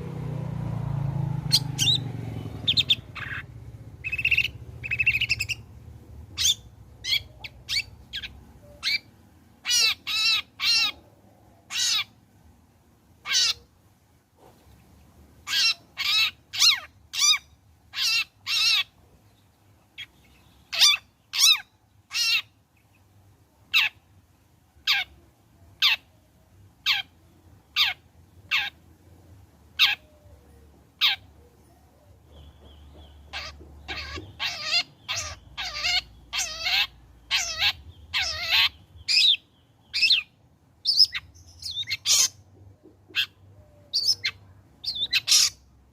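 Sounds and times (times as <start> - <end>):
bird giving harsh rasping calls: 1.4 - 5.7, 6.4 - 11.1, 11.7 - 12.2, 13.2 - 13.7, 15.4 - 19.0, 20.7 - 22.6, 27.7 - 28.8, 29.8 - 30.0, 31.0 - 31.3, 33.0 - 45.7.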